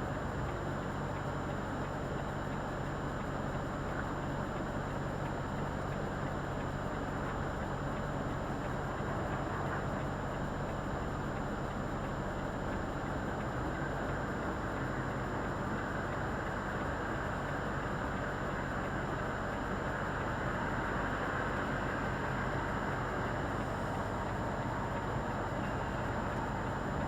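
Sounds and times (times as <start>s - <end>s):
lorry engine hum: 0.0s - 27.0s.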